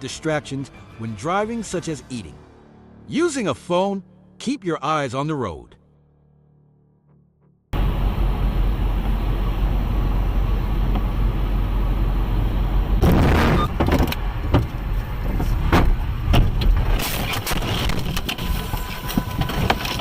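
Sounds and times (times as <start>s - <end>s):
road and engine rumble: 7.8s - 20.0s
vehicle crash bangs: 13.0s - 14.7s.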